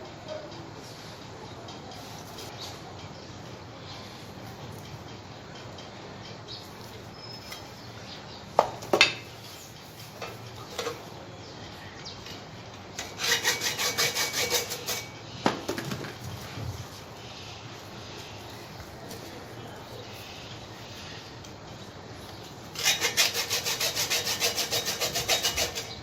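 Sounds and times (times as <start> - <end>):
scrubbing strokes on metal: 13.0 - 15.2, 22.7 - 26.0.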